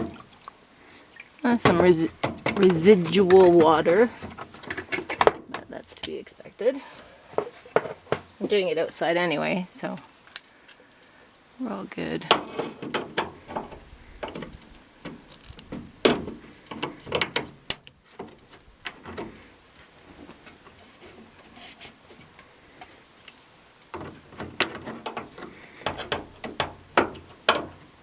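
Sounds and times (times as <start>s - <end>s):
clicks and knocks of hands working: 12.3s - 19.4s, 22.2s - 27.9s.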